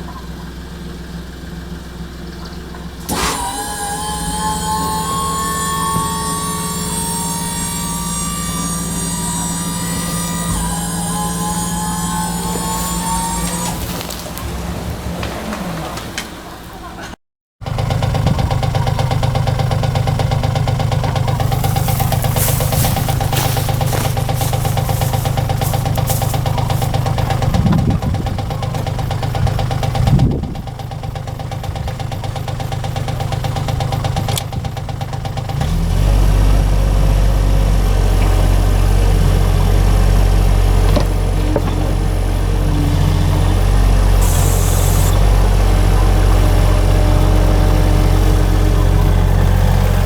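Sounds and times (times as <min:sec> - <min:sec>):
small machine engine running: 0:03.1 - 0:14.2, 0:17.7 - 0:50.0
steady whine: 0:21.3 - 0:28.4.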